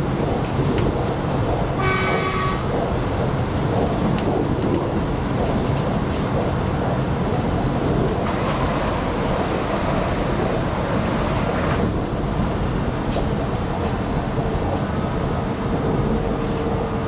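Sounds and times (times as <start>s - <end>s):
train wheels rumbling on rails: 0.0s - 17.0s
sharp clicks: 3.7s - 6.4s.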